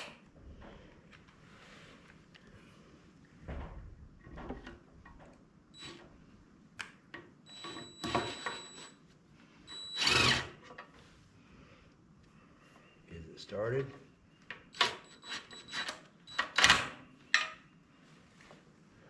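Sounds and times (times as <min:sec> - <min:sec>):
cordless drill whining: 0:09.7 - 0:10.6.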